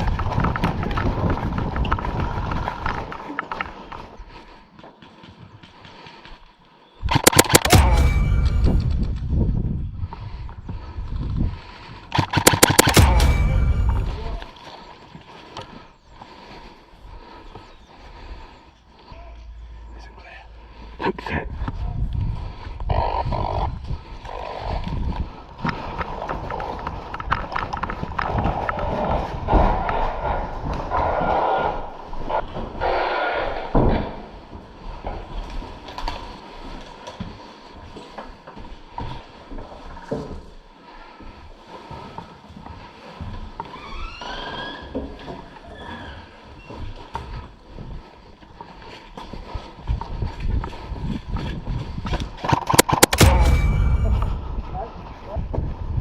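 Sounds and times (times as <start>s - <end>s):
sharp loud cracks: 7.1s - 9.6s, 12.1s - 14.5s, 52.6s - 54.6s
heavy thuds: 7.2s - 10.2s, 12.2s - 14.5s, 53.1s - 55.1s.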